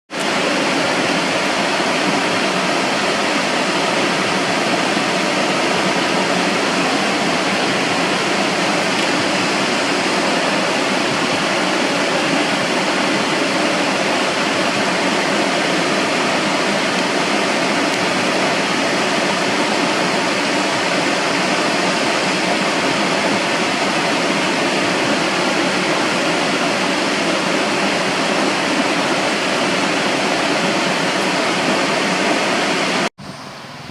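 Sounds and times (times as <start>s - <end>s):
waterfall rushing: 0.1s - 33.1s.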